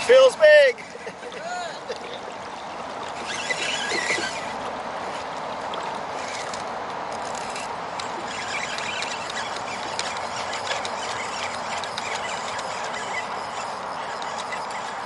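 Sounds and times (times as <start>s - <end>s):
water washing around kayak hull: 0.0s - 15.0s
faint clicks: 6.3s - 15.0s.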